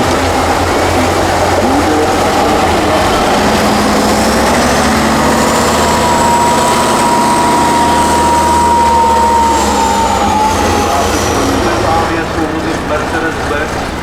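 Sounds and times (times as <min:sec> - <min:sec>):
thin high whine: 0:00.0 - 0:13.4
truck engine running hard: 0:00.0 - 0:14.0.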